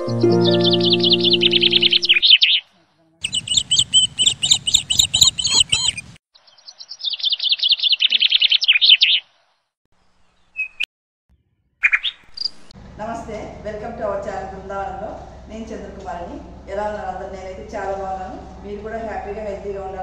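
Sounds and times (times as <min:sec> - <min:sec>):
small birds chirping: 0:00.0 - 0:10.9, 0:11.8 - 0:12.8.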